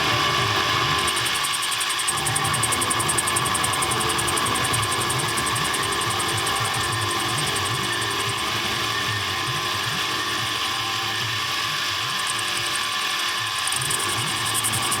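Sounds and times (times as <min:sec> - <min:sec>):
machine mechanical ticking: 0:00.9 - 0:08.4, 0:12.1 - 0:15.0.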